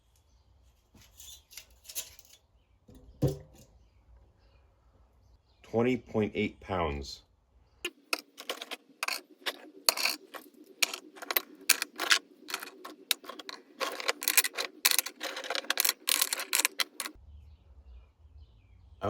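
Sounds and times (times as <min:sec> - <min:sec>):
scrap metal clinking: 0:01.0 - 0:02.4, 0:08.1 - 0:17.2.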